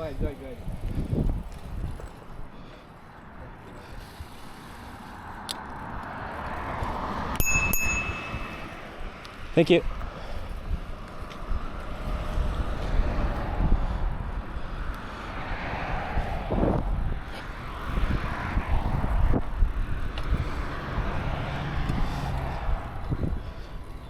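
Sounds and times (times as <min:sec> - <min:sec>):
wind buffeting microphone: 0:00.0 - 0:24.0
road hiss: 0:02.4 - 0:07.3.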